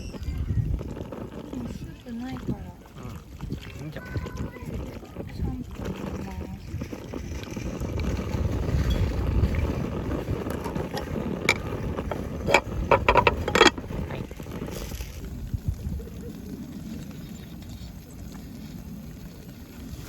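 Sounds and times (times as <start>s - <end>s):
wind buffeting microphone: 0.0s - 20.0s
sharp clatters: 10.5s - 14.1s.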